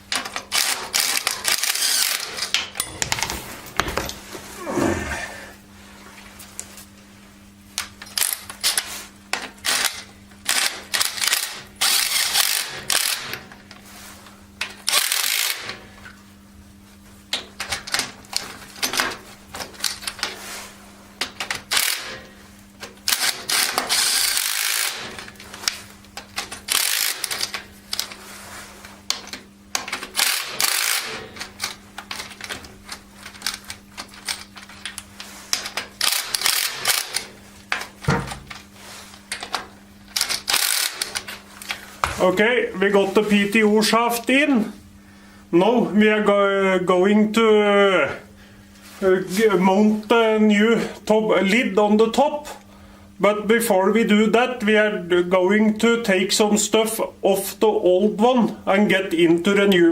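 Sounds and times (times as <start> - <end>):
metal tools clanking: 2.8 - 4.3.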